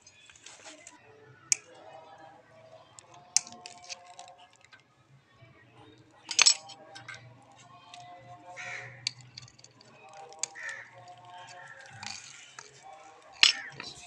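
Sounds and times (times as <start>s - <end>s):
metal clicks: 3.0s - 4.8s, 6.2s - 7.2s, 8.7s - 14.0s
tool scraping metal chain: 9.0s - 14.0s.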